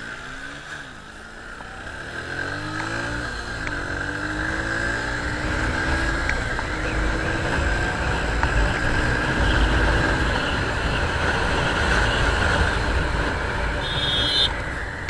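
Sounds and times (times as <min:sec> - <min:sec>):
motorcycle engine tone: 0:00.0 - 0:15.0
wind buffeting microphone: 0:03.3 - 0:15.0.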